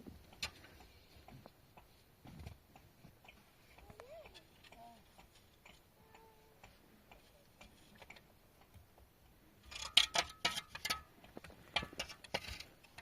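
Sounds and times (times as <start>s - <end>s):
faint scattered clicks: 0.2s - 9.4s
hard objects clicking and knocking: 9.6s - 13.0s.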